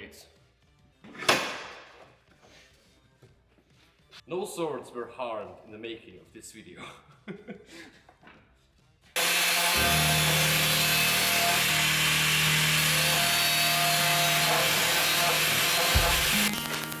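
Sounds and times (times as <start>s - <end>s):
power tool grinding steel: 9.2s - 17.0s.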